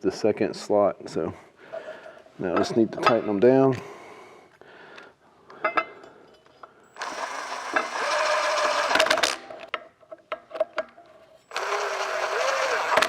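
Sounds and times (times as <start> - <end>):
drill driving screw: 7.0 - 9.6, 11.5 - 13.0.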